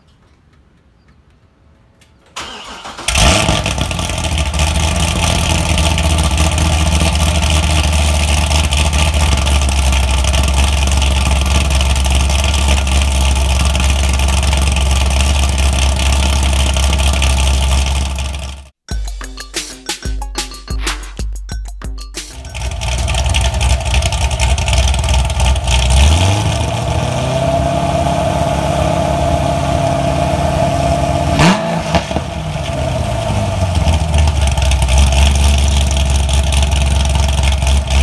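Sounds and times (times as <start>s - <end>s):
engine cranking: 2.4s - 18.6s, 22.4s - 26.8s
car engine loud cold idle: 3.1s - 18.7s, 22.5s - 27.1s, 32.1s - 38.0s.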